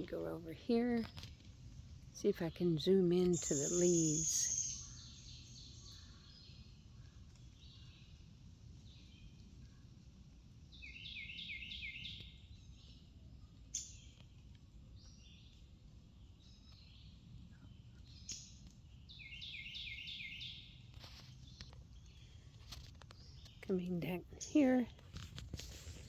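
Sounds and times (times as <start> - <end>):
low outdoor rumble: 0.0 - 11.0
songbird chirping: 2.2 - 6.7, 10.7 - 13.0, 16.2 - 25.0.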